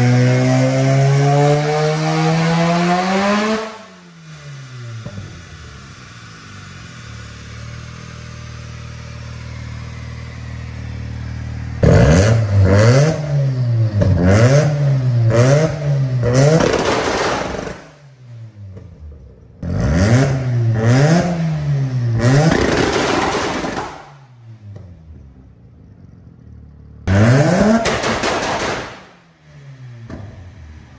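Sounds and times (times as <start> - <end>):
rotary engine idling and revving: 0.0 - 30.9.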